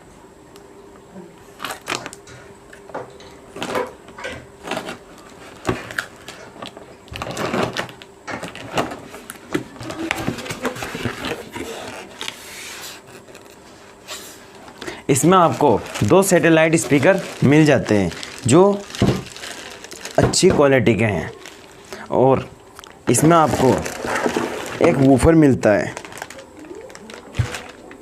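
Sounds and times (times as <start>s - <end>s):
cardboard scraping and rustling: 4.6s - 6.0s, 7.2s - 20.4s, 23.1s - 27.9s.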